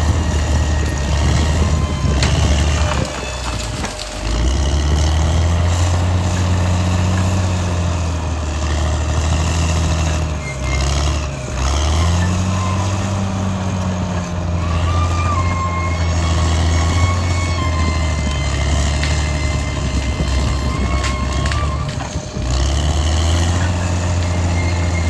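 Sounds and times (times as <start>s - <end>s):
bulldozer diesel engine under load: 0.0s - 25.0s.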